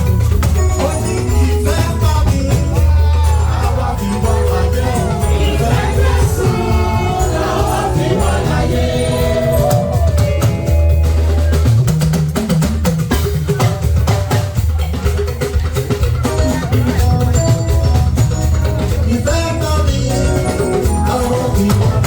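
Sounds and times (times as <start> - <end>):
heavy bass line: 0.0 - 12.2, 15.9 - 22.0
drums: 0.0 - 22.0
gospel voices singing together: 0.8 - 10.9, 19.0 - 22.0.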